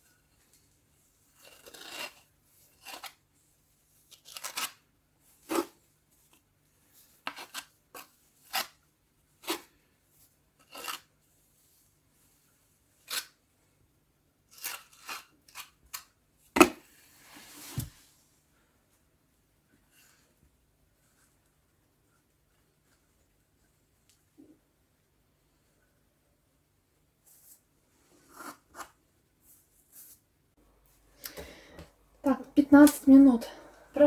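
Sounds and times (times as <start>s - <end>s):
rustling scrape: 16.8s - 18.4s, 27.2s - 30.3s.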